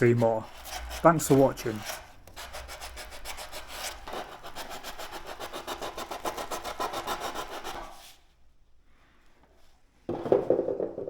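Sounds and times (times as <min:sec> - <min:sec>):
sandpaper rubbing hard surface: 0:00.0 - 0:08.2.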